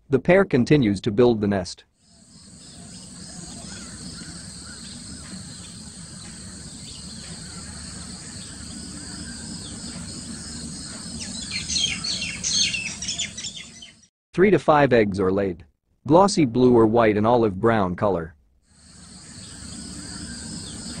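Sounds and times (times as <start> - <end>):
outdoor background noise: 0.0 - 14.6, 16.1 - 21.0
wild birds calling: 2.0 - 14.1, 18.8 - 21.0.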